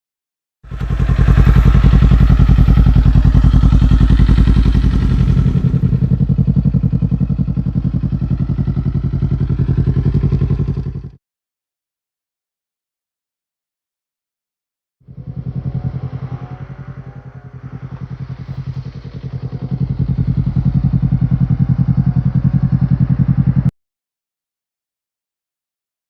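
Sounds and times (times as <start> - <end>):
motorcycle engine running: 0.6 - 11.2, 15.0 - 23.7.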